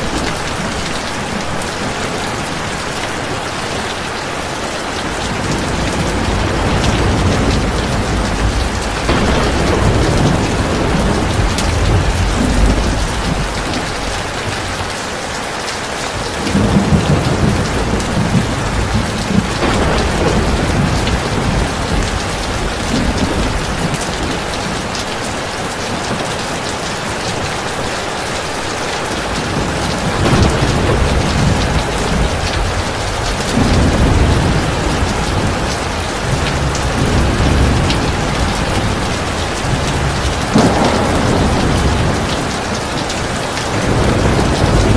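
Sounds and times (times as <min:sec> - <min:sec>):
heavy rain pouring: 0:00.0 - 0:44.9
low rolls of thunder: 0:05.0 - 0:15.0, 0:16.2 - 0:25.0, 0:29.0 - 0:44.9.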